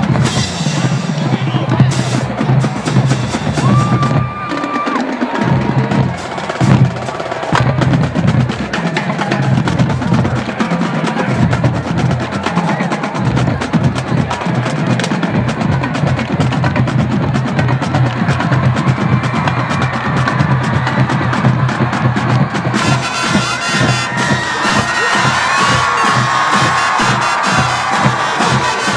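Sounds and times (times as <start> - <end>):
held brass notes: 20.3 - 28.9.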